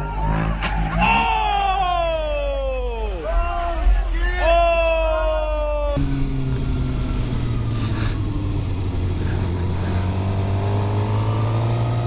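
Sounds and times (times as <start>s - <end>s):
road and wind noise: 0.0s - 12.0s
motorcycle engine droning: 5.4s - 12.0s.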